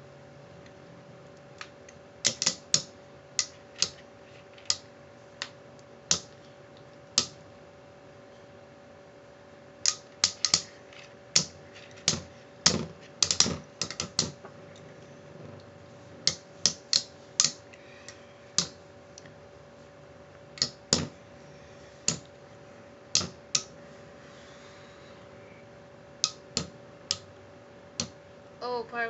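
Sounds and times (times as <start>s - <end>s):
faint steady whir: 0.0s - 29.0s.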